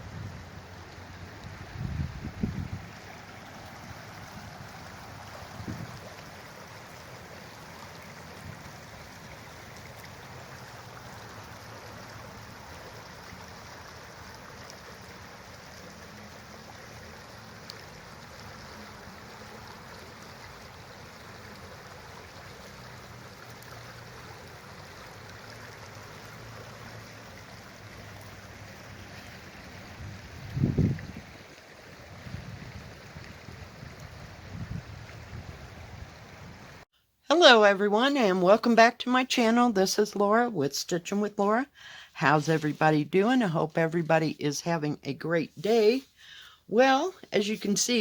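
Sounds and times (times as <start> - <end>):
rushing stream water: 0.0 - 36.9, 41.2 - 48.0.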